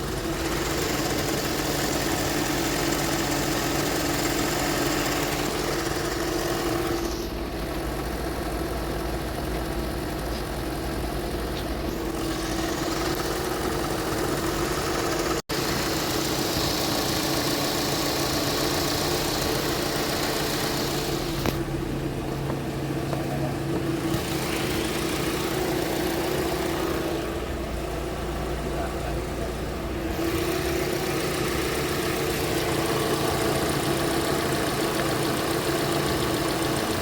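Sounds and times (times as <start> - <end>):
car engine idling: 0.0 - 37.0
hiss: 0.4 - 7.5, 15.6 - 21.6.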